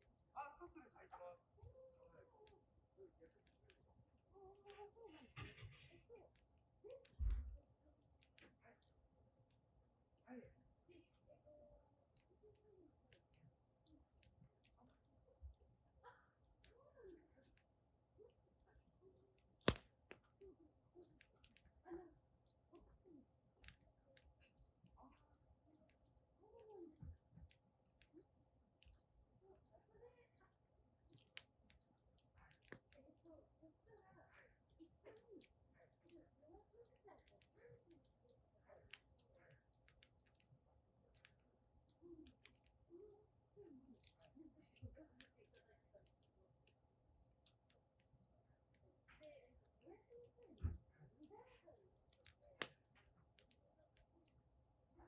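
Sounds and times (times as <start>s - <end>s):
wood fire crackling: 2.3s - 49.9s, 50.5s - 55.0s
firewood popping: 19.4s - 20.3s.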